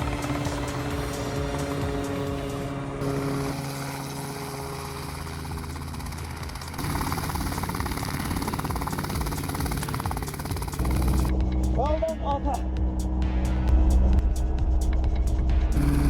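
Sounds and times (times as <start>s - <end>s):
helicopter running: 0.0s - 11.8s, 15.1s - 16.0s.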